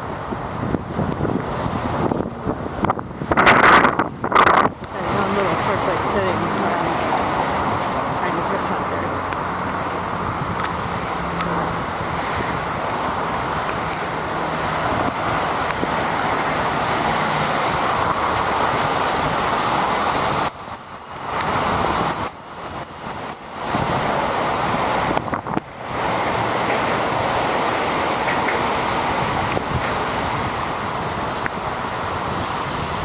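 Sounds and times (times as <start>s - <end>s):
wind on microphone: 0.0s - 9.4s, 21.2s - 33.0s
traffic: 0.0s - 33.0s
high-pitched squeals: 20.5s - 24.3s.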